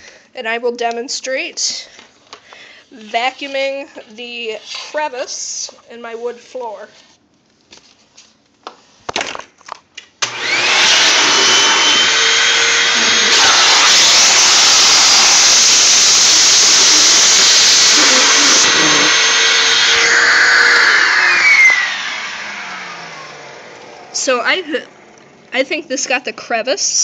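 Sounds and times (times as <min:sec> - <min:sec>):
vacuum cleaner motor running: 0:10.2 - 0:25.4.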